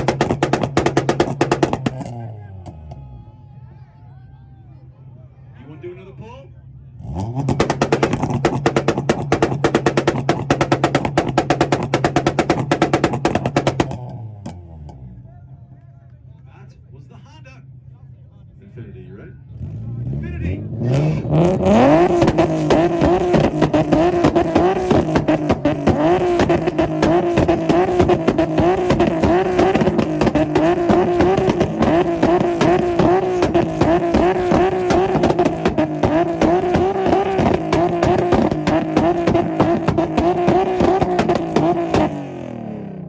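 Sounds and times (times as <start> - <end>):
launch limiter popping: 0.0 - 2.8, 21.0 - 42.6
car engine droning: 0.0 - 43.0.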